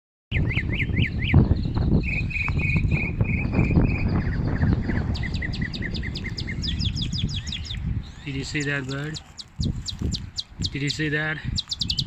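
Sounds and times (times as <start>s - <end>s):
mockingbird singing: 0.3s - 12.0s
loud low rumble: 3.2s - 8.2s.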